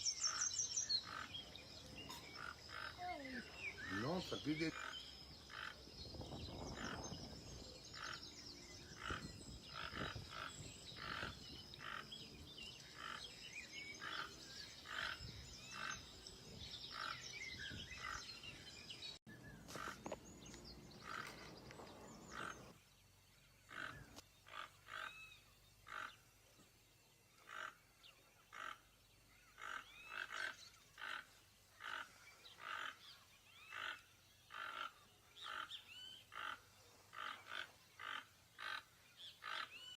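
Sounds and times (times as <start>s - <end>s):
toucan croaking call: 0.0s - 5.9s, 6.7s - 7.1s, 9.0s - 12.2s, 12.8s - 16.1s, 22.2s - 22.7s, 23.7s - 26.3s, 27.4s - 40.0s.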